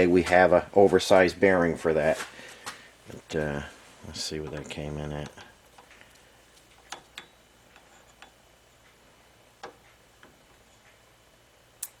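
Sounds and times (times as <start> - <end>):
micrometer clicks and taps: 4.4 - 9.0, 9.6 - 11.0.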